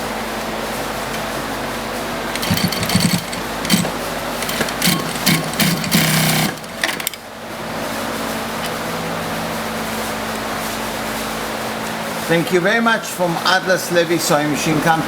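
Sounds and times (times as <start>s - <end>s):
sewing machine stitching: 2.3s - 7.2s.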